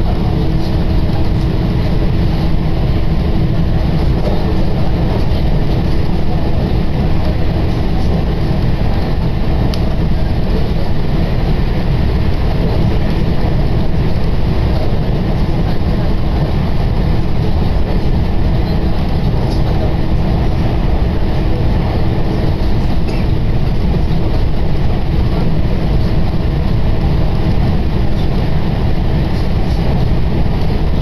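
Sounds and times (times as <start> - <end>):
train running rumble: 0.0 - 31.0.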